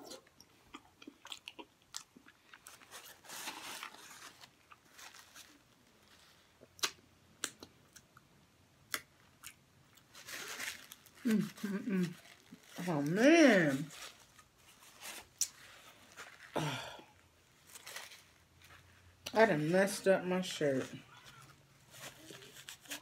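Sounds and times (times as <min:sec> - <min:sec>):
close-up chewing: 0:00.0 - 0:05.0.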